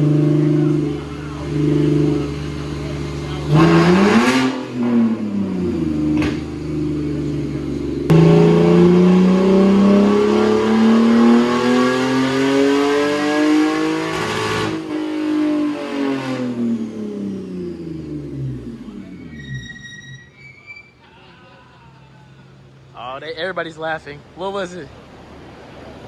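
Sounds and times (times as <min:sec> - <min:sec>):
car engine revving: 0:00.0 - 0:19.7.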